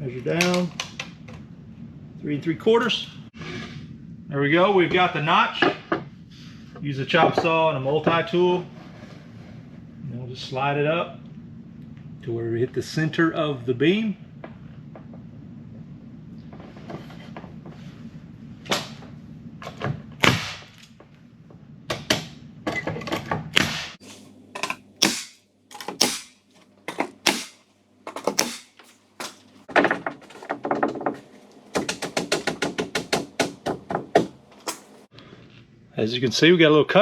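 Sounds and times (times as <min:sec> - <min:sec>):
low background hum: 0:00.0 - 0:23.0
fast run of clicks: 0:24.6 - 0:29.7, 0:31.8 - 0:35.1
knocks and taps on wood board: 0:31.8 - 0:34.8.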